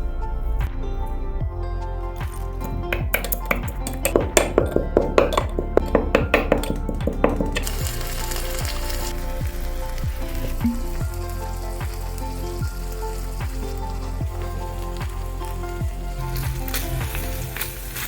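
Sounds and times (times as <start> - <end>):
fish sizzling: 7.6 - 18.0.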